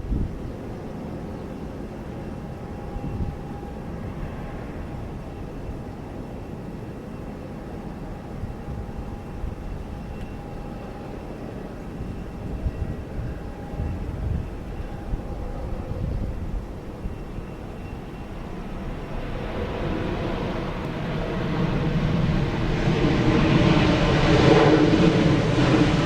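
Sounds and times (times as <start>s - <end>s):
faint high engine whine: 0.0s - 26.0s
jet engines rumbling: 0.0s - 26.0s.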